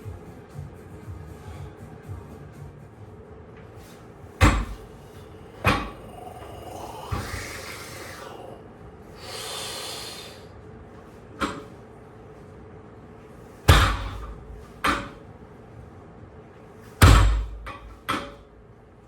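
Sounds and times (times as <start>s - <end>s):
heavy thuds: 3.8s - 7.8s, 13.6s - 15.2s.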